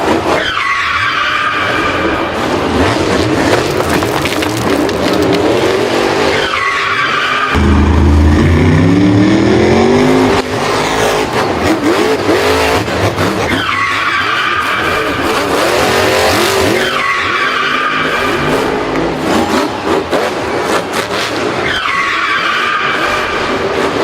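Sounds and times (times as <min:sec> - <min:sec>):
tyres skidding: 0:00.0 - 0:24.0
engine revving: 0:07.4 - 0:13.6.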